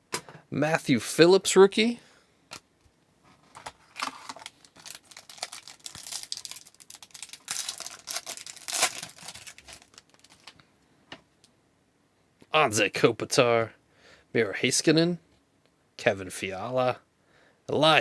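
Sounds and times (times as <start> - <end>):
cards rustling: 3.4 - 10.6
foil wrapper crinkling and tearing: 3.5 - 10.6.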